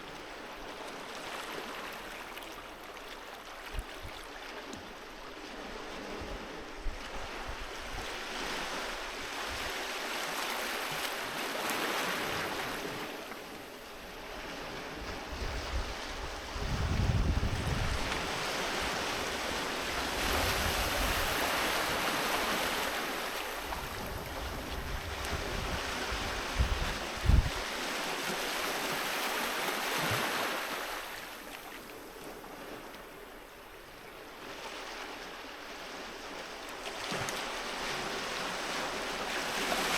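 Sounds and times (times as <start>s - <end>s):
sea waves breaking: 0.0s - 39.9s
wind thuds on microphone: 15.0s - 18.4s, 23.8s - 27.6s.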